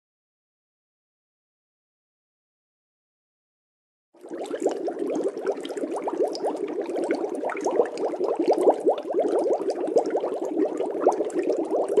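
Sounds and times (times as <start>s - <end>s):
water bubbling: 4.2s - 12.0s.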